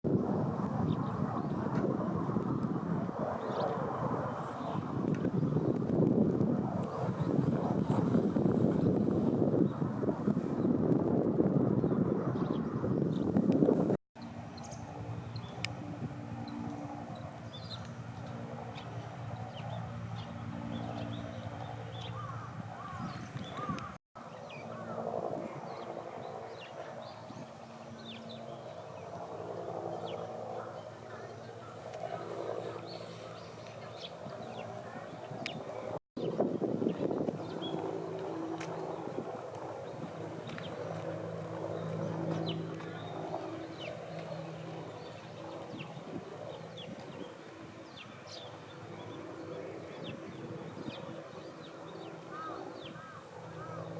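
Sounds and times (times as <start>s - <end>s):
sparrows chirping: 11.8s - 13.4s, 14.2s - 39.2s, 39.8s - 53.9s
low engine-like hum: 14.2s - 23.0s
low arching bird calls: 19.4s - 35.9s, 47.8s - 53.9s.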